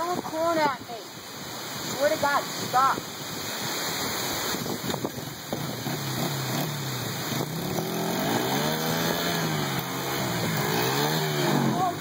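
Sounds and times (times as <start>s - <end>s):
dirt bike engine revving: 5.1s - 12.0s.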